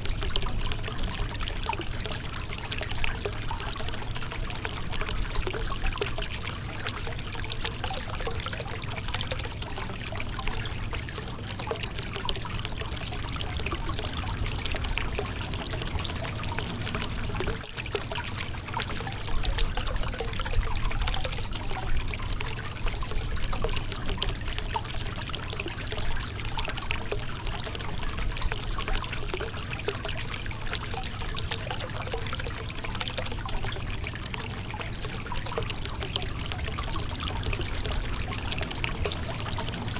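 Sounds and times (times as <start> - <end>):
river water running over rocks: 12.1 - 20.2, 34.5 - 39.9.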